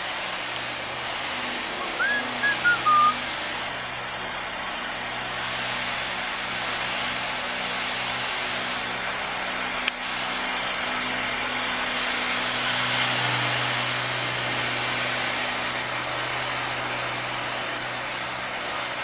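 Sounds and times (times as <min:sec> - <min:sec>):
lawn mower engine running: 0:00.0 - 0:19.0.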